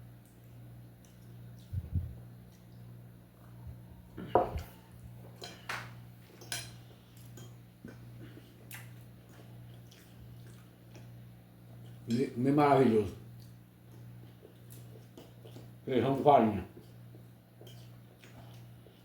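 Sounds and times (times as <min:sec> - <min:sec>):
steady low hum: 0:00.0 - 0:19.0
cutlery clinking on a plate: 0:05.4 - 0:07.6.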